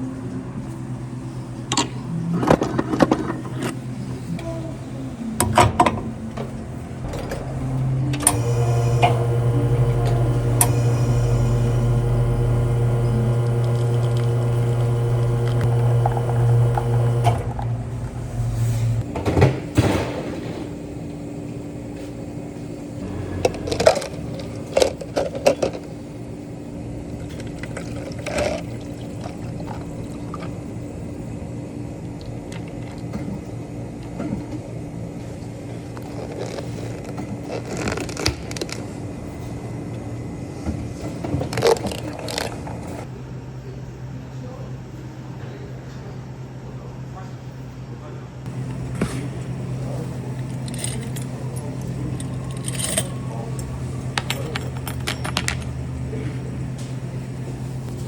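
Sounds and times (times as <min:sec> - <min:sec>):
kitchen appliance humming: 0:05.0 - 0:19.2, 0:48.5 - 0:58.0.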